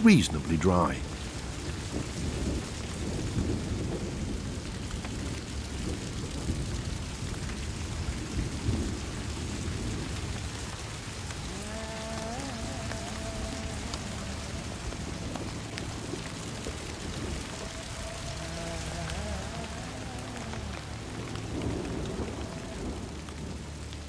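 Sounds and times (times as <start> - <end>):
rain falling on forest: 0.0 - 24.0
low rumble: 8.6 - 24.0.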